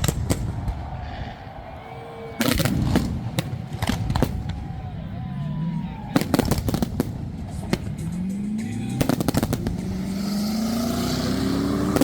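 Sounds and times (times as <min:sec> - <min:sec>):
fireworks crackling and banging: 0:00.0 - 0:01.0, 0:02.4 - 0:04.9, 0:06.1 - 0:10.8, 0:11.7 - 0:12.0
race car engine accelerating: 0:07.2 - 0:12.0.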